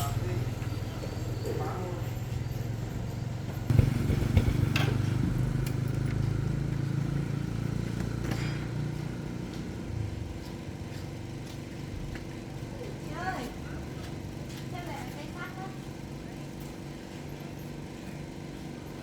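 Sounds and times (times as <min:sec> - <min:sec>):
sharp knocks: 0:03.7 - 0:05.6.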